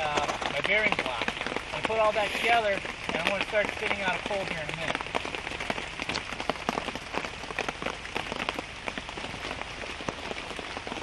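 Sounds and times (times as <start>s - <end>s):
rain falling steadily: 0.0s - 11.0s
sharp drops and drips: 0.0s - 11.0s.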